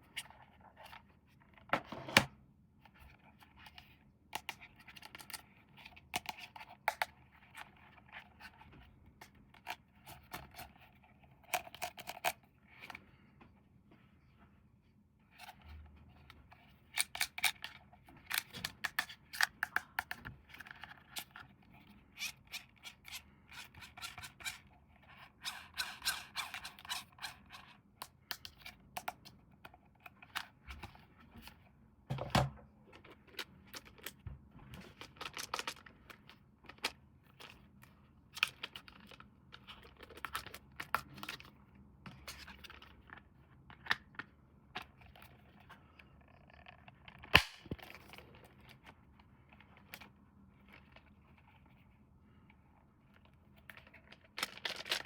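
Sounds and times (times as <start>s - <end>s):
packaging being opened: 34.9s - 36.9s, 53.7s - 55.0s.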